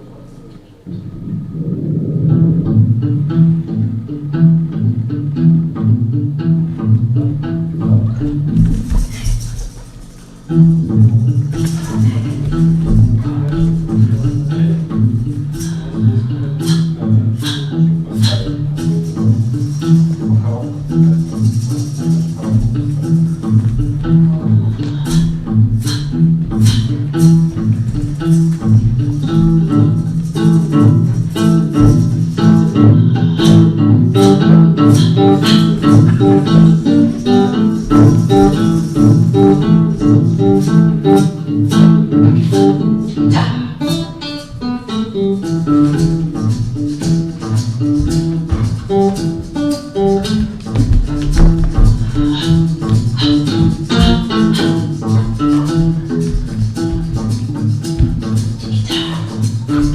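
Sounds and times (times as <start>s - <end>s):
plucked guitar notes: 0.0s - 59.9s
low bass line: 0.8s - 9.2s, 10.8s - 42.7s.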